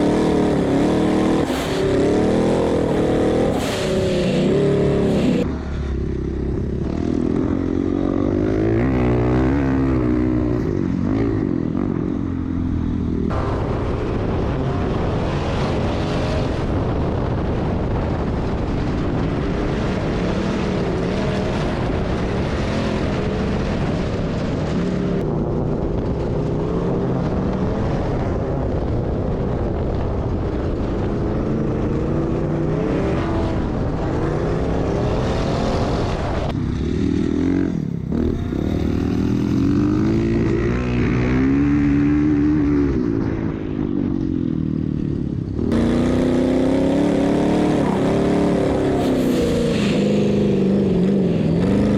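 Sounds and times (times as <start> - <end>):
off-road vehicle engine revving: 0.0 - 5.5, 45.7 - 51.9.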